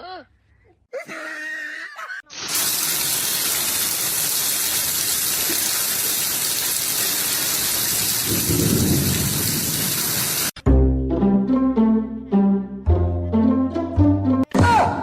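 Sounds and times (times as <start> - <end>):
loud rushing hiss: 2.5 - 10.6.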